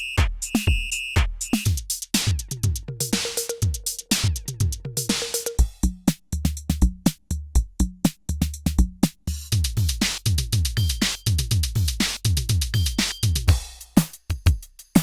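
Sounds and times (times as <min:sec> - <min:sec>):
electronic kick drums: 0:00.0 - 0:15.0
hi-hats and percussion hits: 0:00.0 - 0:15.0.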